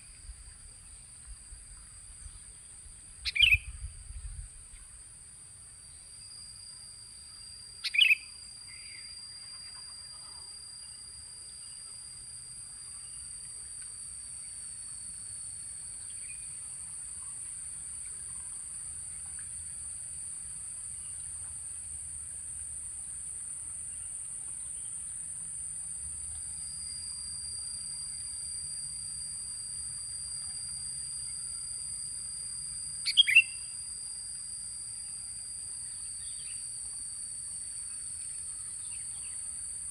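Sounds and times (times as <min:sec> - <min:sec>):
high-pitched insect drone: 0:00.0 - 0:39.9
bulbul calls: 0:03.2 - 0:03.8, 0:07.8 - 0:09.0, 0:33.0 - 0:33.7.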